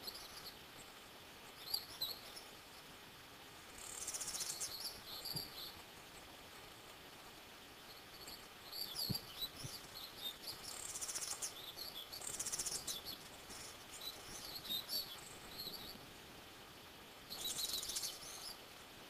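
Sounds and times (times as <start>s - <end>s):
buzzy bird trills: 3.8s - 5.8s, 8.1s - 16.0s.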